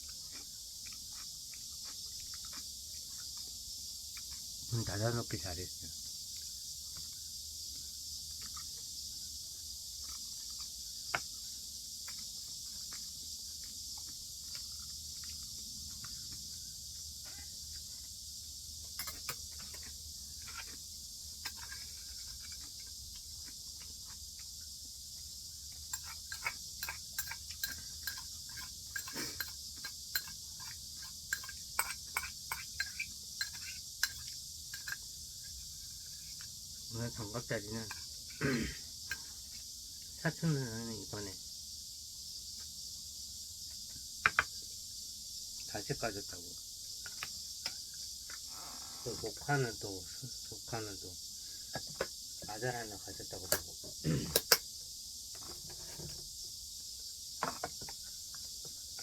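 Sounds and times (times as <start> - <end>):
chewing clicks: 0.0 - 4.4
high-pitched hiss: 0.0 - 59.0
utensils clicking on dishes: 25.9 - 35.0.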